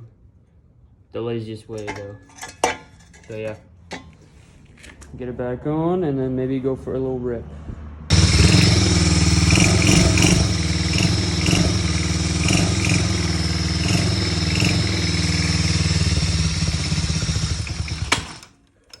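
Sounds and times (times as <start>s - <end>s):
small engine idling: 8.1s - 18.6s.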